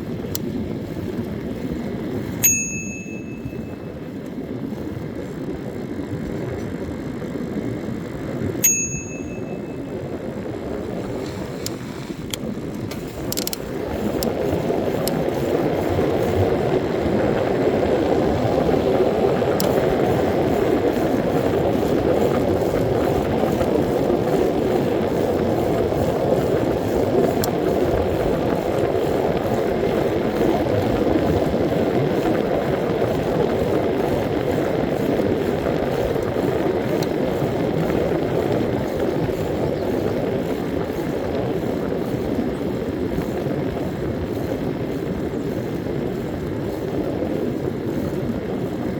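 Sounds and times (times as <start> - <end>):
bicycle mechanical clicks: 0.0 - 48.9
tyre and wind noise: 0.0 - 48.9.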